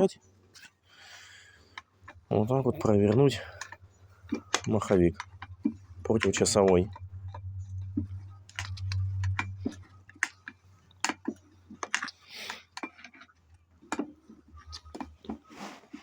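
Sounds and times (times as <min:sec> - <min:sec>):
clicks and metallic knocks: 0:01.7 - 0:15.1.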